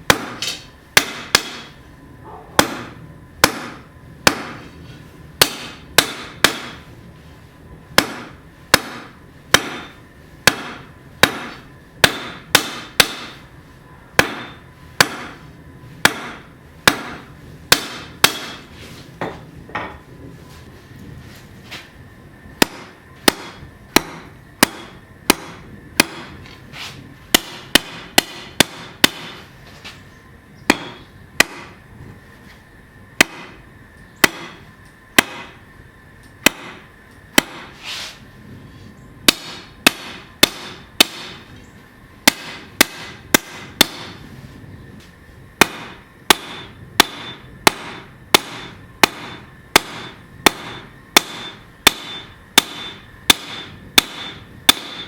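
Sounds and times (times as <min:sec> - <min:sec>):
hammer ringing on anvil: 0:14.2 - 0:15.4, 0:16.1 - 0:18.6, 0:30.7 - 0:31.6, 0:45.6 - 0:55.0.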